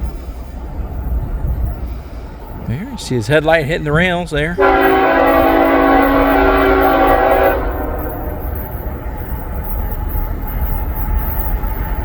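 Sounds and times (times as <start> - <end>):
low rumble of train: 0.0 - 12.0
locomotive air horn chord: 4.6 - 9.0.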